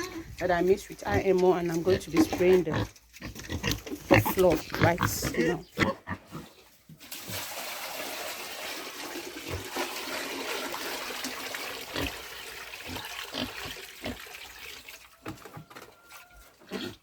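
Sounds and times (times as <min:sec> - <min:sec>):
water rushing out: 0:07.0 - 0:15.2.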